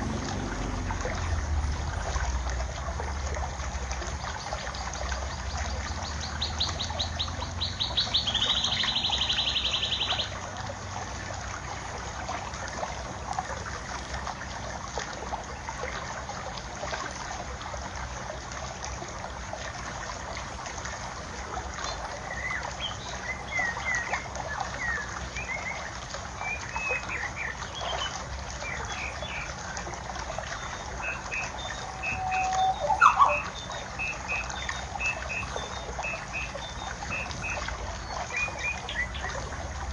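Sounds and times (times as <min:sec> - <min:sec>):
water trickling: 0:00.0 - 0:39.9
birds chirping: 0:05.3 - 0:10.4, 0:30.5 - 0:39.4
fast high bird trill: 0:31.1 - 0:34.5.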